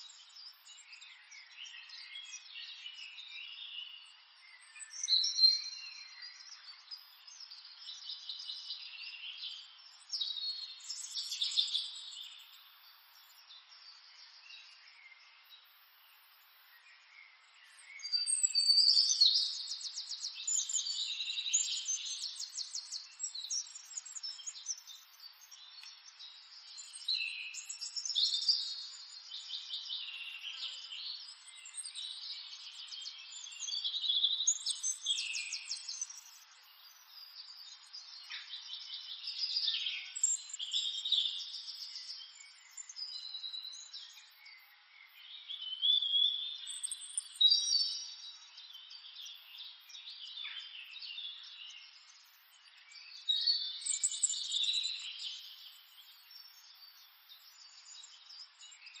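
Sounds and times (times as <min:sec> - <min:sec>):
small birds singing: 0:00.0 - 0:59.0.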